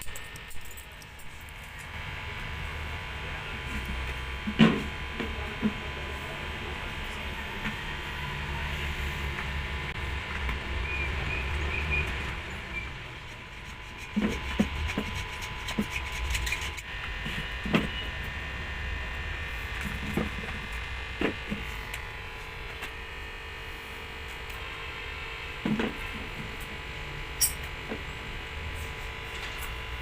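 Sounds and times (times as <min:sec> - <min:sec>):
electrical hum: 0:00.0 - 0:30.0.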